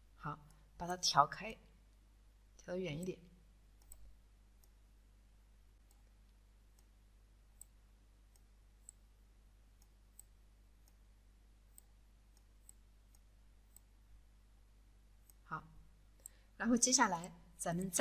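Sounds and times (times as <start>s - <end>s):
low electrical hum: 0.0s - 18.0s
computer mouse clicks: 3.7s - 4.9s, 5.8s - 9.1s, 9.7s - 11.1s, 11.7s - 14.0s, 15.2s - 15.5s, 16.1s - 16.4s, 17.2s - 18.0s.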